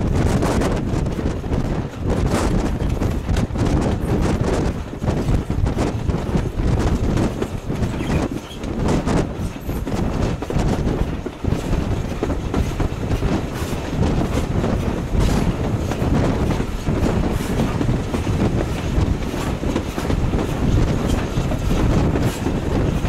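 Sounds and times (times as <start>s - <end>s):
train wheels rumbling: 0.0s - 23.0s.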